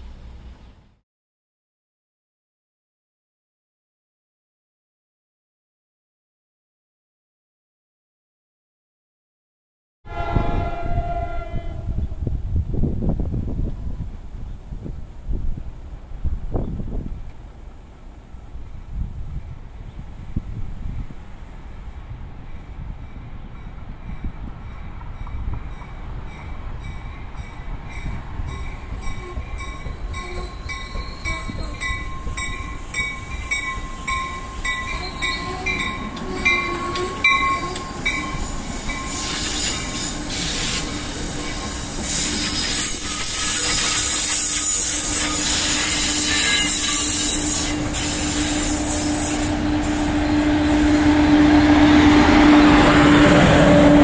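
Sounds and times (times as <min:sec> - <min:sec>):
steady low horn tone: 0:10.1 - 0:12.5, 0:47.2 - 0:54.0
train rolling rush: 0:10.1 - 0:54.0
bell ringing: 0:28.6 - 0:39.2.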